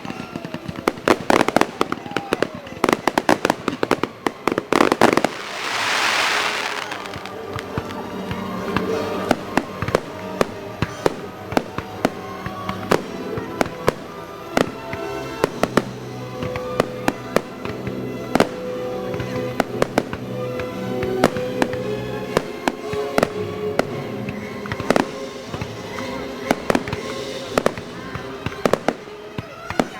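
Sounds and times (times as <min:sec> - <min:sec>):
fireworks bangs and pops: 0:00.0 - 0:29.9
music with sustained notes: 0:00.0 - 0:29.9.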